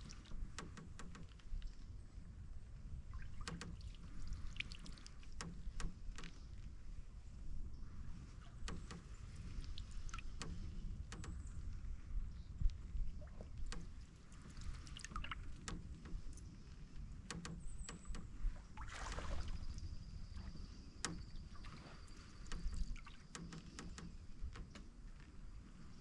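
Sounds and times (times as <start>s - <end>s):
paddle knocks and hull creaks: 0.0s - 1.9s, 3.0s - 7.0s, 7.9s - 12.1s, 12.7s - 26.0s
paddle swishing in water: 12.8s - 26.0s.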